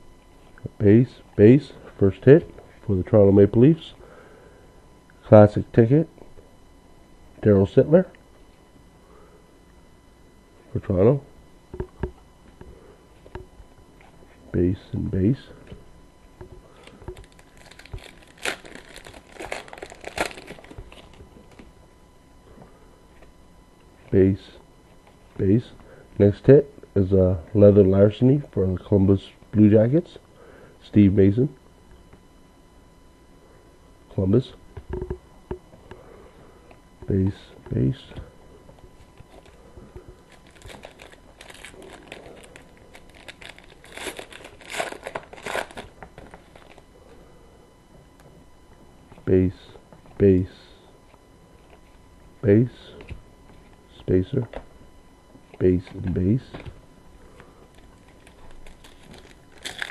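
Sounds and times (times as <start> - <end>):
card packaging crinkling: 16.8 - 21.7, 40.2 - 46.9, 57.7 - 59.9.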